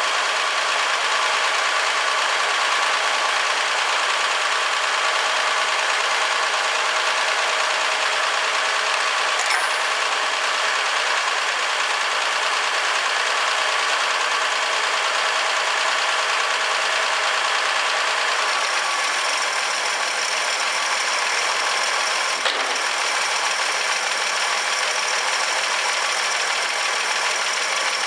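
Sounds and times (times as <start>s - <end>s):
brief click: 9.4s - 10.1s.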